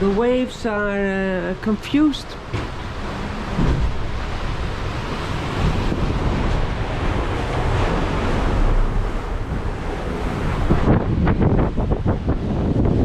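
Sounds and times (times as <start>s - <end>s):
sea waves: 0.0s - 13.0s
wind buffeting microphone: 2.4s - 13.0s
wind rushing: 2.7s - 13.0s.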